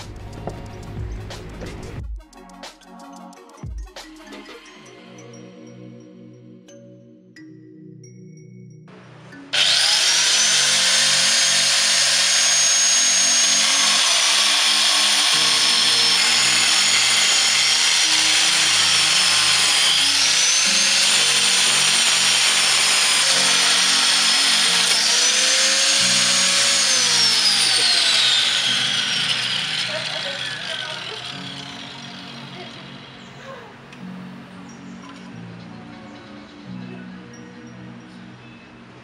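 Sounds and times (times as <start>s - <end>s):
angle grinder cutting tile: 9.6s - 33.2s.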